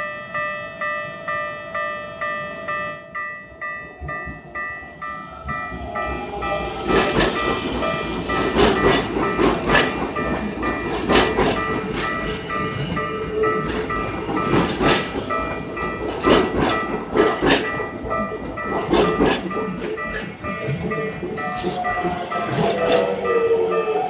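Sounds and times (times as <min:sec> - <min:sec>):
crossing warning bell ringing: 0:00.0 - 0:24.0
train wheels clacking over rail joints: 0:05.7 - 0:24.0.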